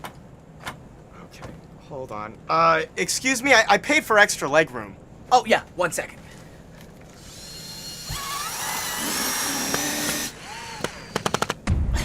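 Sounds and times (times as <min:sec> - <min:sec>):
electric drill whirring: 0:07.2 - 0:11.6
sharp clicks: 0:09.7 - 0:11.6.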